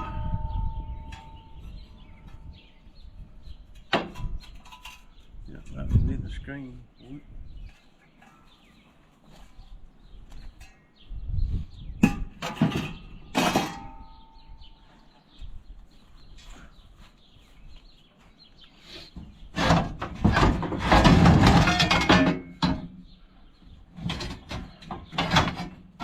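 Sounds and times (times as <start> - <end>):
metal parts rattling and scraping: 3.7 - 5.3, 12.0 - 14.5, 19.5 - 23.0, 23.9 - 26.0
metal parts clanking: 3.8 - 5.2, 12.0 - 14.5, 19.6 - 23.0, 24.0 - 26.0.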